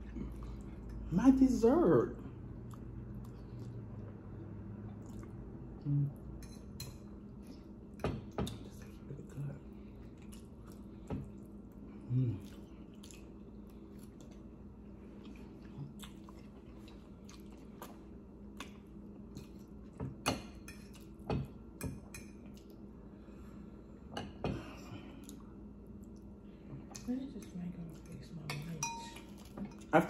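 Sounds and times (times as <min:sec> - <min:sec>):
person chewing spaghetti: 0:00.0 - 0:01.1, 0:02.4 - 0:06.3, 0:07.1 - 0:21.6, 0:22.3 - 0:23.5, 0:24.8 - 0:27.1
faint steady hum: 0:00.0 - 0:30.0.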